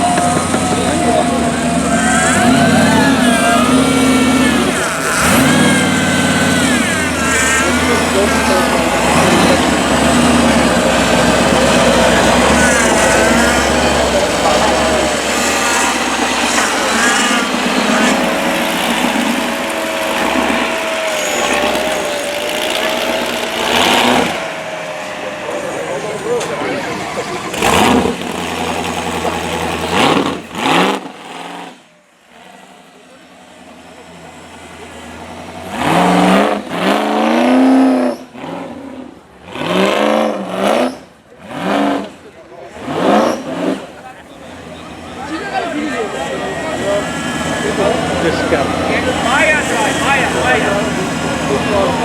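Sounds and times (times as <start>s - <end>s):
background voices: 0.0s - 30.0s
off-road vehicle engine revving: 0.0s - 52.0s.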